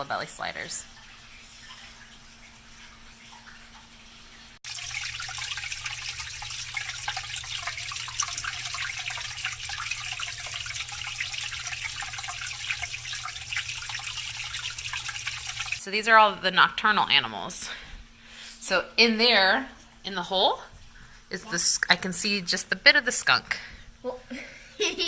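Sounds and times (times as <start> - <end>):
water running and splashing: 0.0 - 15.8
low steady hum: 0.0 - 25.0.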